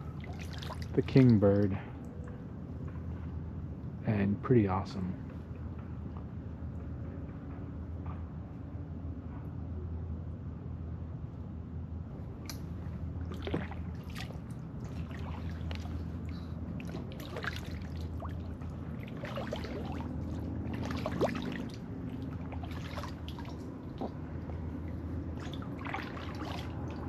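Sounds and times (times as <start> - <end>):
water drips and small splashes: 0.0 - 2.5, 12.4 - 27.0
steady low hum: 0.0 - 27.0
paddle dipping into water: 13.3 - 27.0.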